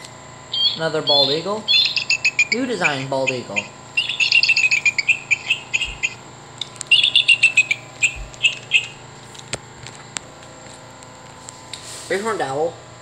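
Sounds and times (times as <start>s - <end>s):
toy eagle call: 0.6s - 6.2s, 6.9s - 9.0s.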